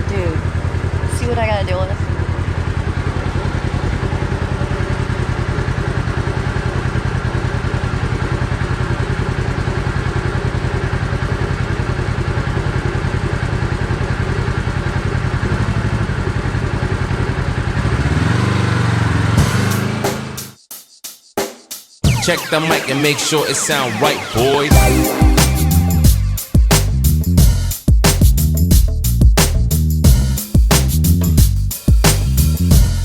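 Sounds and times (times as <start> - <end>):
utility vehicle engine running: 0.0 - 19.2.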